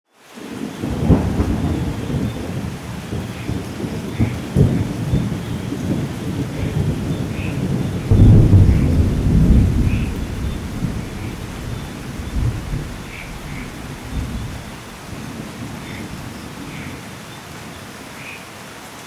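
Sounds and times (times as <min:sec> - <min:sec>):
heavy rain: 0:00.1 - 0:19.0
rolling thunder: 0:00.7 - 0:17.8.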